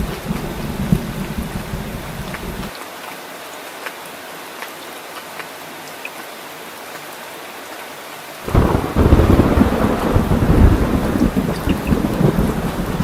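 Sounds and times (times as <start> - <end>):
loud low thunder rumbling: 0.0 - 2.7, 8.5 - 13.0
heavy rain: 0.0 - 13.0.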